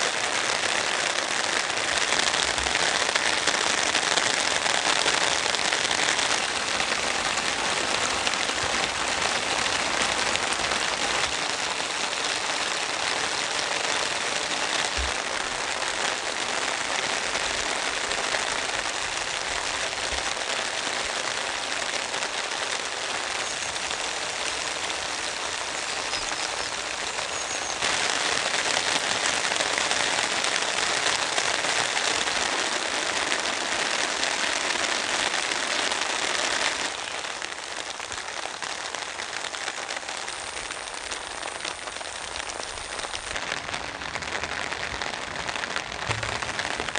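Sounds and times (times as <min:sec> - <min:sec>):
heavy rain: 0:00.0 - 0:46.9
faint low knocks: 0:46.1 - 0:46.9.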